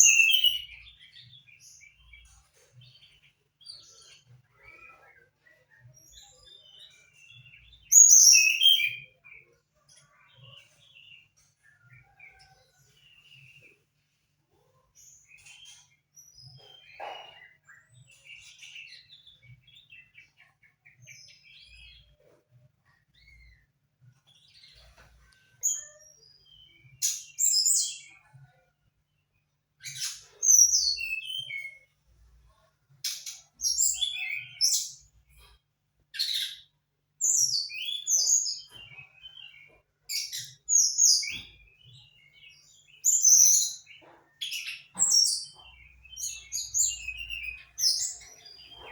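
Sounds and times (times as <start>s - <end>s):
songbird chirping and singing: 0.0s - 48.9s.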